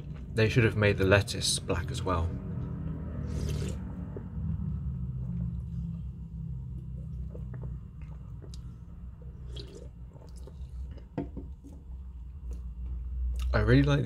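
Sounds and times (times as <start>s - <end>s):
low rumble: 1.7s - 10.4s
person chewing: 3.2s - 4.4s, 5.3s - 11.2s.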